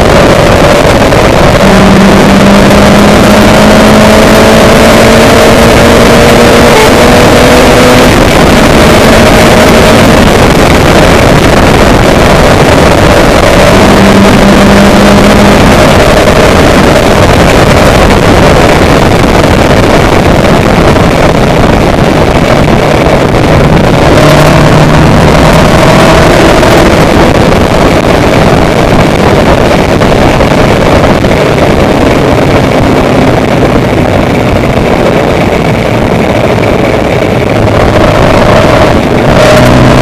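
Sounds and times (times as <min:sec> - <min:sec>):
faint drifting tones: 0:00.0 - 0:05.9
dense rushing noise: 0:00.0 - 0:40.0
loud engine running: 0:00.0 - 0:40.0.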